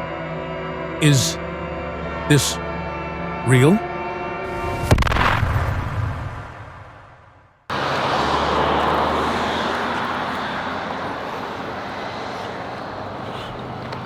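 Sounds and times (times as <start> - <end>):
jet aircraft flying overhead: 7.7 - 14.0.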